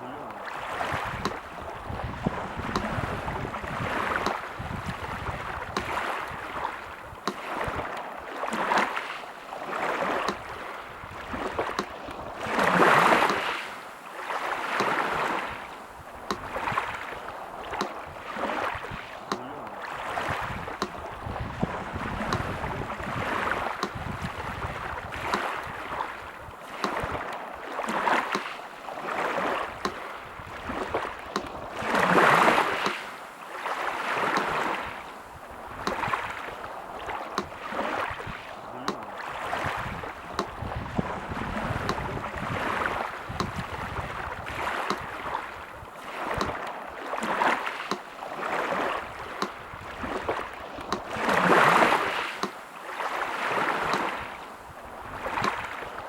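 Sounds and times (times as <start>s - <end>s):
surf washing on shore: 0.0s - 56.0s
metronome ticks: 1.2s - 1.5s, 2.7s - 3.0s, 4.2s - 4.4s, 5.7s - 5.9s, 7.2s - 7.4s, 10.2s - 10.4s, 11.7s - 12.2s, 13.1s - 13.5s, 14.8s - 15.0s, 16.3s - 16.5s, 17.8s - 18.0s, 19.3s - 19.5s, 20.8s - 21.0s, 22.2s - 22.6s, 23.8s - 24.0s, 25.3s - 25.5s, 26.8s - 27.2s, 28.3s - 28.5s, 29.8s - 30.0s, 31.3s - 31.6s, 32.8s - 33.0s, 34.4s - 34.6s, 35.8s - 36.1s, 38.9s - 39.1s, 40.3s - 40.6s, 41.8s - 42.1s, 43.4s - 43.6s, 44.9s - 45.1s, 46.4s - 46.8s, 47.9s - 48.1s, 49.4s - 49.6s, 50.8s - 51.1s, 52.4s - 52.6s.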